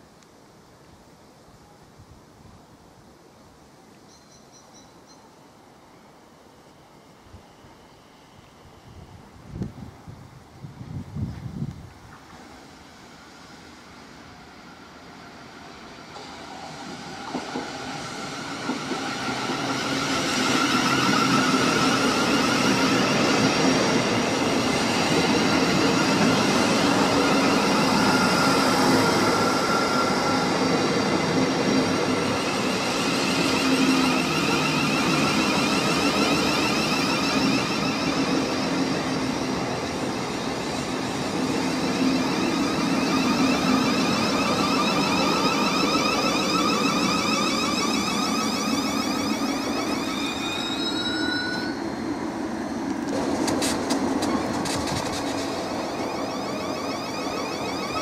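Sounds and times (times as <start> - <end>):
high electric whine: 40.8 - 52.2, 53.0 - 58.0
rolling wheel noise: 52.9 - 58.0.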